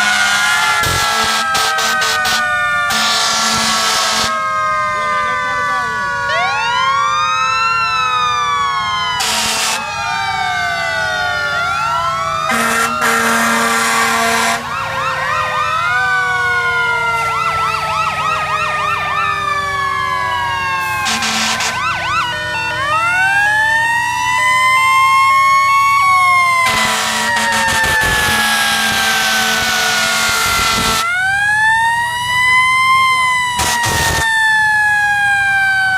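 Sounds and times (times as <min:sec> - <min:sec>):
air horn blasts: 0:00.0 - 0:04.4, 0:09.2 - 0:09.8, 0:12.5 - 0:14.7, 0:20.8 - 0:22.0, 0:26.6 - 0:31.1, 0:33.6 - 0:34.2
fire engine sirens wailing: 0:00.0 - 0:35.9.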